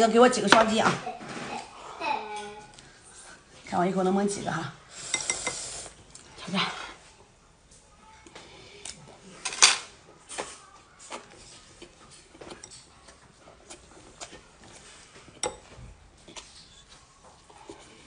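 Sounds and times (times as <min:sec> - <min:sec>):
close-up eating sounds: 0:04.8 - 0:18.0.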